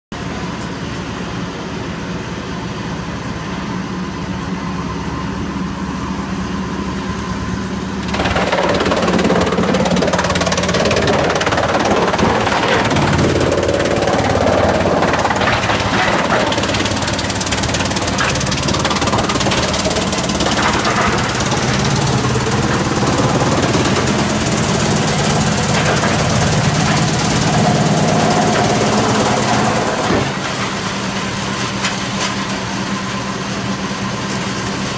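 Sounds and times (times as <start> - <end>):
wood chipper running: 0.2 - 34.9
wood cracking and knocking: 8.0 - 30.8.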